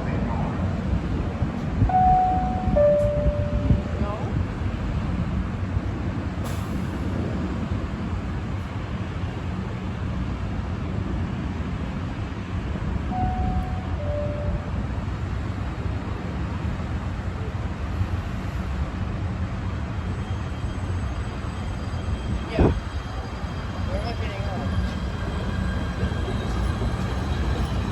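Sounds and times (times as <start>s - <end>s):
two-tone signal: 1.9s - 4.0s, 13.1s - 14.8s.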